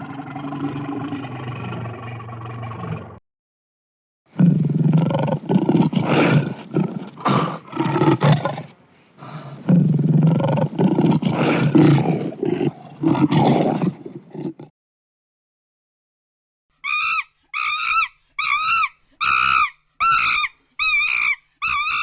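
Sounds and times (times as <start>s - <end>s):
lion roaring: 0.0s - 3.2s, 4.4s - 14.7s.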